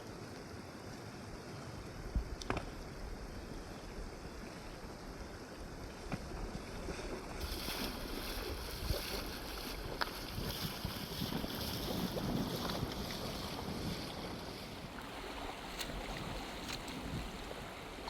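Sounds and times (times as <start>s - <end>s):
river water rushing: 14.4s - 18.0s.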